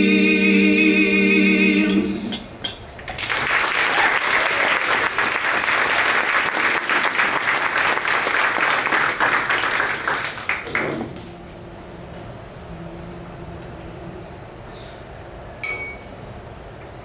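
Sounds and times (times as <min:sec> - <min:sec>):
faint steady hum: 0:00.0 - 0:17.0
audience applauding: 0:03.0 - 0:11.3.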